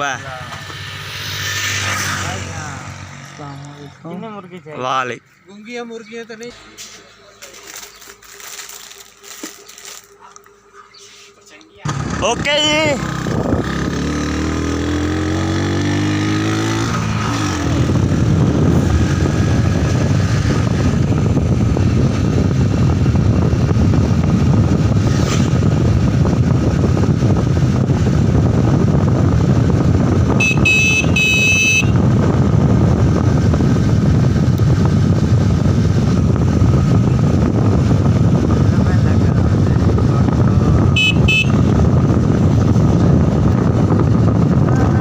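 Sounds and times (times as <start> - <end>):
motorcycle engine: 0.0 - 5.2, 11.7 - 45.0
horn beeps: 30.4 - 32.0, 40.8 - 41.7.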